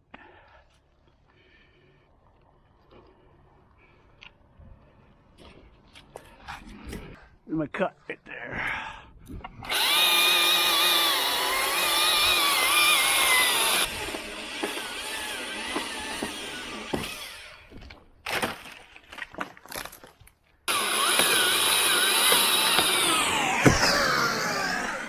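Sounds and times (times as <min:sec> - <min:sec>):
chainsaw cutting at high revs: 0:09.7 - 0:17.6, 0:20.7 - 0:25.0.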